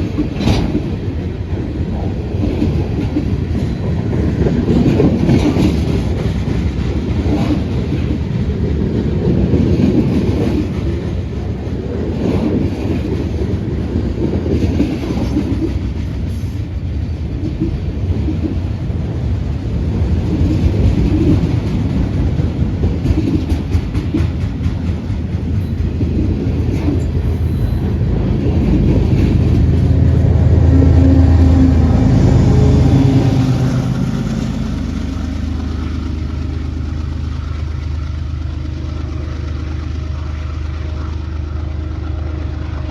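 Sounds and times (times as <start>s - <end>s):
train wheels clattering over rail joints: 0.0s - 30.2s
engine drone: 25.5s - 42.9s.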